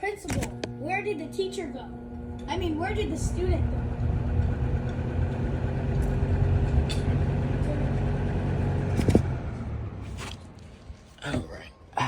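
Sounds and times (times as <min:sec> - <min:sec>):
box fan motor hum: 0:00.0 - 0:11.0.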